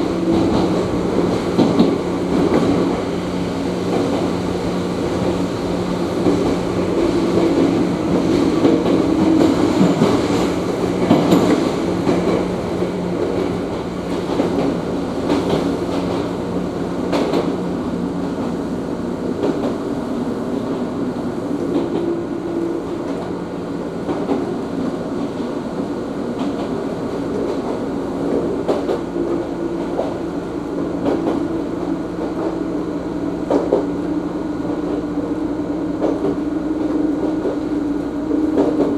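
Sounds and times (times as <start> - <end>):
electric train running hum: 0.0 - 38.9.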